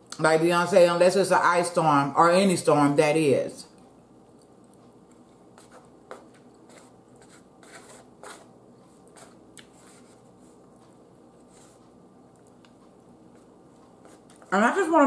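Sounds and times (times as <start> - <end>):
person chewing: 4.2 - 14.4.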